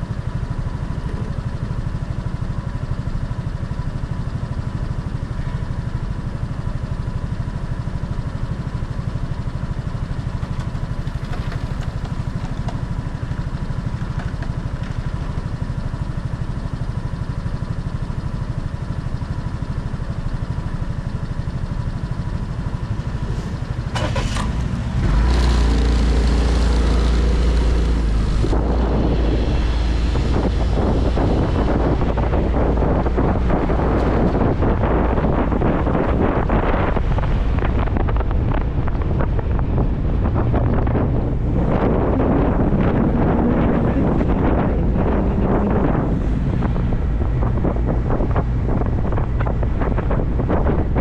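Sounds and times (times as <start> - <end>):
motorcycle engine idling and accelerating: 0.0 - 51.0
wind rumbling on microphone: 10.2 - 17.3, 20.9 - 51.0.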